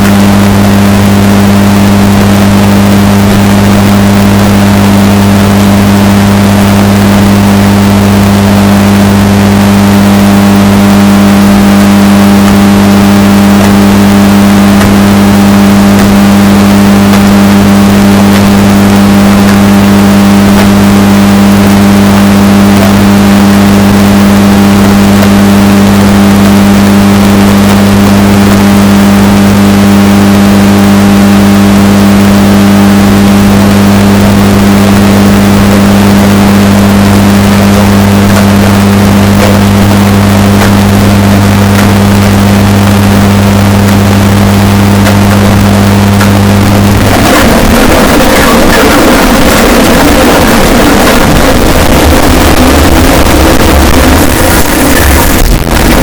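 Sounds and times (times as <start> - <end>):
washing machine humming: 35.4 - 56.0.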